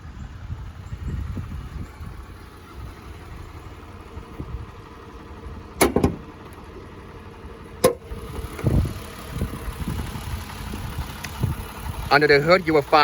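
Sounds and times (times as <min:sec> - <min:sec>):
hood latch metallic click: 0:05.8 - 0:06.7, 0:07.8 - 0:08.7.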